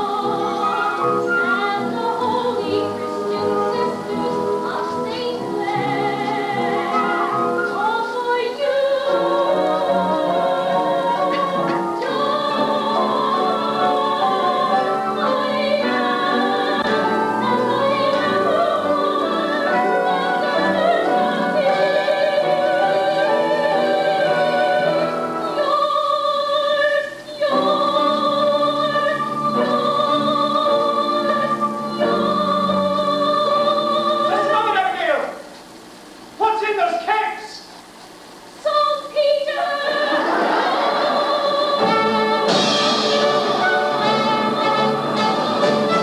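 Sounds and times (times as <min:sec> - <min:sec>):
person singing with vibrato: 0:00.0 - 0:35.5, 0:38.6 - 0:46.0
instrumental accompaniment: 0:09.0 - 0:25.8, 0:40.8 - 0:46.0.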